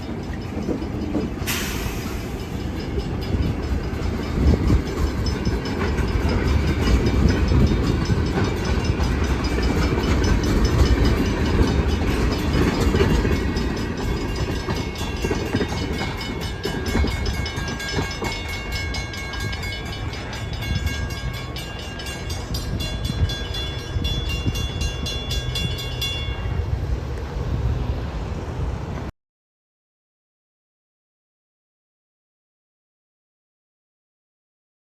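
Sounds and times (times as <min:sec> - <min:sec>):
wheels clicking over rail joints: 0:00.0 - 0:26.4
freight train wheels rumbling: 0:00.0 - 0:29.1.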